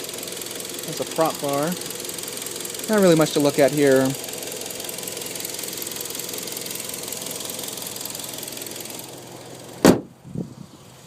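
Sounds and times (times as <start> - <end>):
car engine idling with ticking: 0.0 - 11.0
car hood slamming shut: 9.8 - 10.2.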